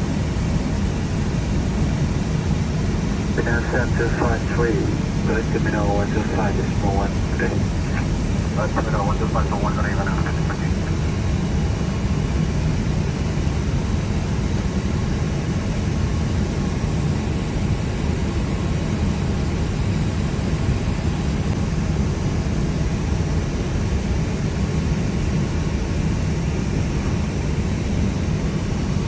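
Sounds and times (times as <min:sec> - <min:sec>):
aircraft engines rumbling: 0:00.0 - 0:29.0
cabin ventilation hiss: 0:03.4 - 0:11.0.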